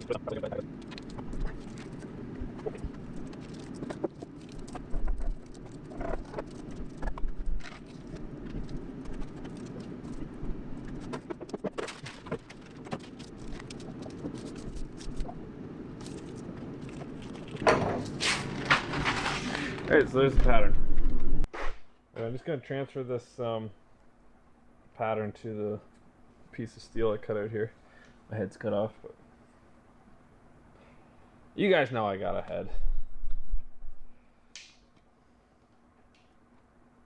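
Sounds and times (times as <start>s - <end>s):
steady low hum: 0.0s - 37.0s
paper rustling: 0.5s - 20.0s.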